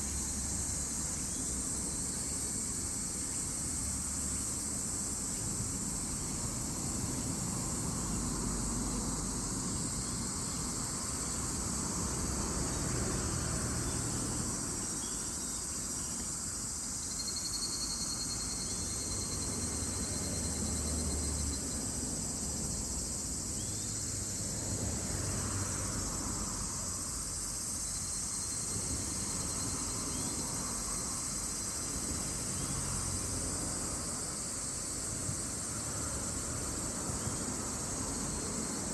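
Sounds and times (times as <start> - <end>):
insects buzzing: 0.0 - 38.9
low trilling insect call: 0.0 - 38.9.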